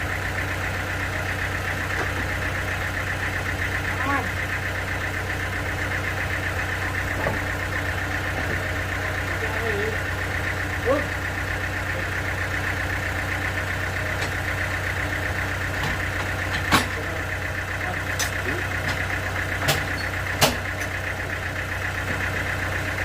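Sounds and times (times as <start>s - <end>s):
sawmill engine running: 0.0s - 23.0s
sharp knocks: 19.6s - 20.6s.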